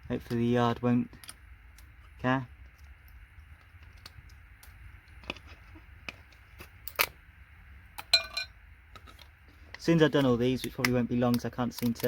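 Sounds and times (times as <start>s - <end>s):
metallic clink: 8.0s - 8.5s
hand tools clicking on circuit boards: 10.1s - 12.0s.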